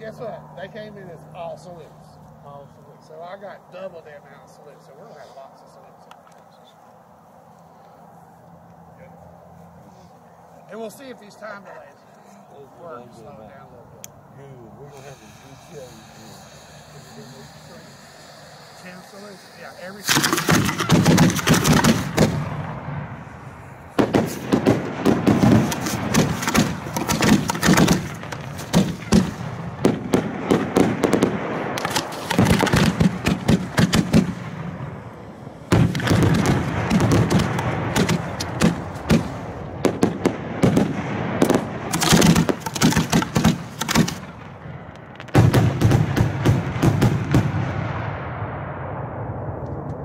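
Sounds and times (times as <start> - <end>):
fireworks crackling: 14.7 - 50.0.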